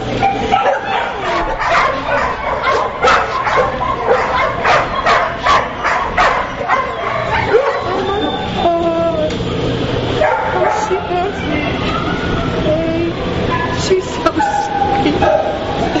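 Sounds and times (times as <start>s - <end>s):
dogs barking: 0.0s - 8.6s, 9.5s - 16.0s
dogs whining and yelping: 0.1s - 12.7s, 13.5s - 16.0s.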